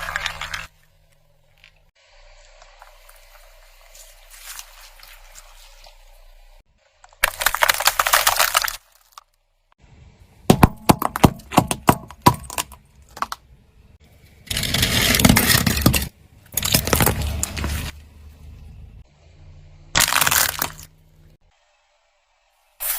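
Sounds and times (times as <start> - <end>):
brittle objects crunching under tyre: 0.0 - 0.8, 2.4 - 5.9, 7.0 - 9.4, 14.3 - 18.0, 20.0 - 21.0.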